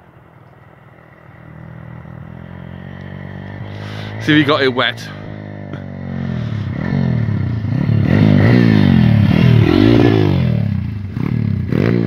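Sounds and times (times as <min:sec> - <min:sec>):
motorbike engine revving: 0:01.0 - 0:12.0.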